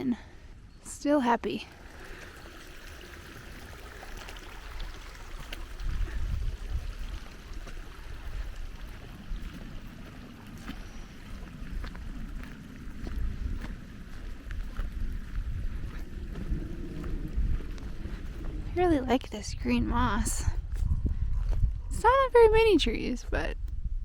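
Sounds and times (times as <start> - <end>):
wind rumbling on microphone: 1.6 - 24.0.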